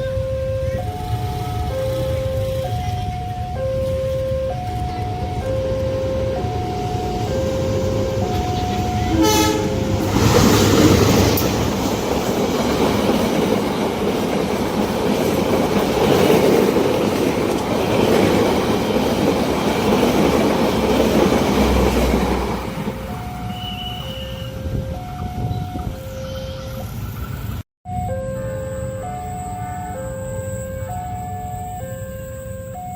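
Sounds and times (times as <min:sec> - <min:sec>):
two-tone crossing alarm: 0:00.0 - 0:14.4, 0:15.3 - 0:27.1, 0:27.9 - 0:32.9
train wheels on rails: 0:00.0 - 0:27.6
train horn blast: 0:08.3 - 0:10.4, 0:23.4 - 0:24.8.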